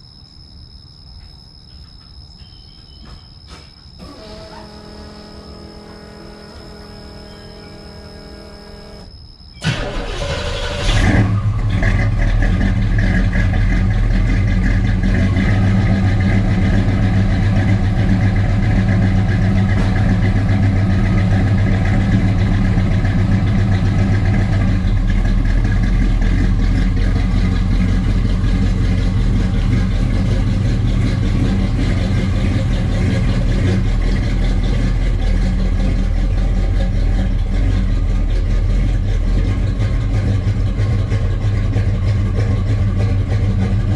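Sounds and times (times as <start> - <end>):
car engine starting and idling: 3.5 - 43.9.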